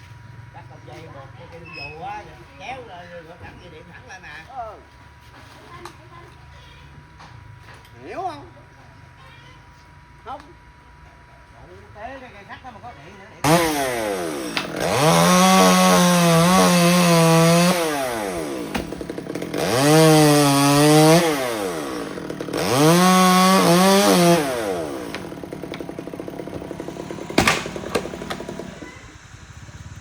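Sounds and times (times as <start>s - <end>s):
chainsaw engine revving: 13.4s - 30.0s.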